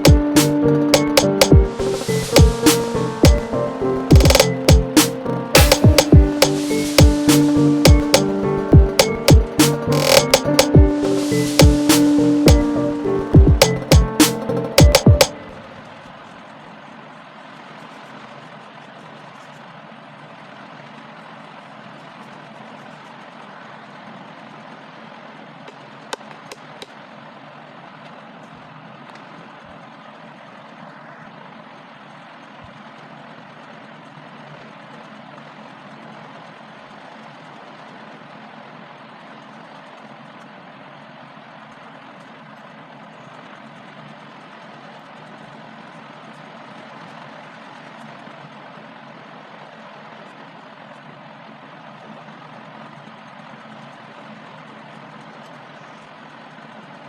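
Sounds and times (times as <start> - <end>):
steady background noise: 0.0 - 57.0
sharp clicks: 0.1 - 1.6, 8.9 - 10.8.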